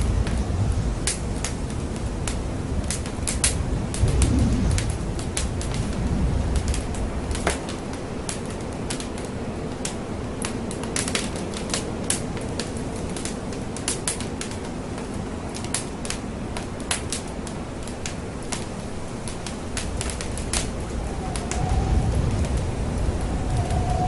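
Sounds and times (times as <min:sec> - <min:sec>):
steady fire hiss: 0:00.0 - 0:24.0
wood fire crackling and popping: 0:00.0 - 0:24.0
low rumble: 0:03.8 - 0:06.8, 0:20.2 - 0:24.0.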